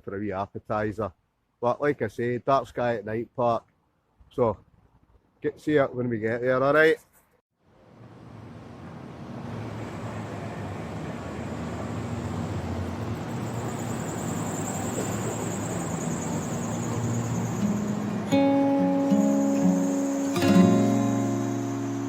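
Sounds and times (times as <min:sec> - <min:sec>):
car road and engine noise: 0:07.6 - 0:22.0
faint high whine: 0:07.8 - 0:22.0.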